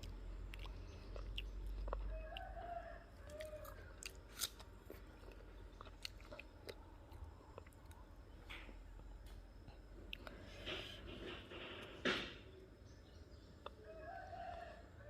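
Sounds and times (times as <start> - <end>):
fruit being bitten and chewed: 0.0 - 2.6, 3.2 - 10.8
rooster crowing: 2.0 - 4.0, 13.8 - 15.0.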